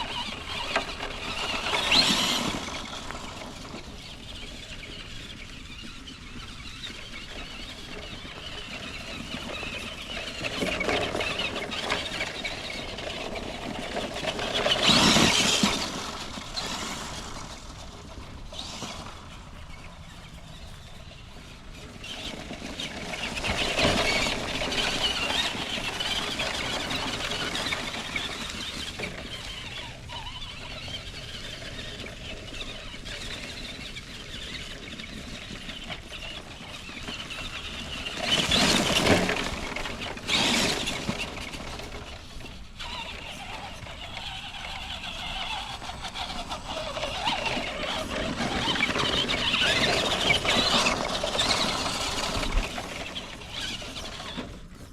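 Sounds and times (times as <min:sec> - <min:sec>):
electric motor and gears whining: 0:00.0 - 0:54.9
tyres through leaves: 0:00.0 - 0:54.9.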